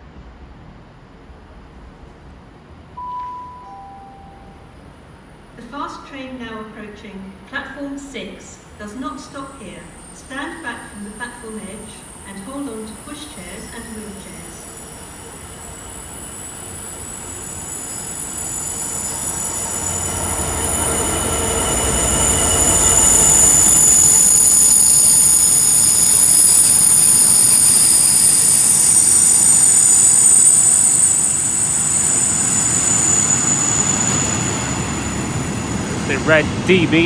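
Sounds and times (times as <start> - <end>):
diesel locomotive engine rumble: 8.9 - 37.0
high-pitched wheel squeal: 9.9 - 36.6.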